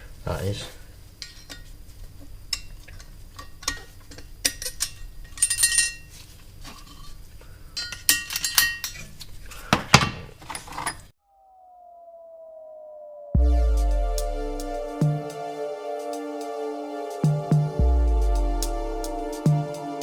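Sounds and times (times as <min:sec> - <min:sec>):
metal engine parts clinking: 0:04.6 - 0:06.1.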